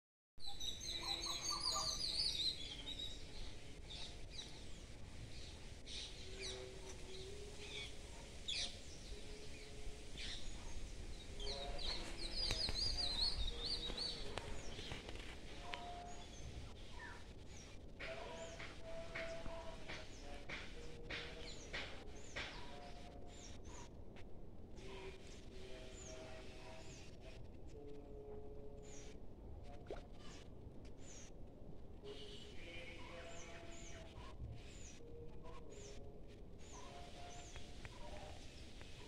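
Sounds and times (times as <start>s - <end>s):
birds singing and chirping: 0.4s - 23.9s, 32.0s - 39.0s.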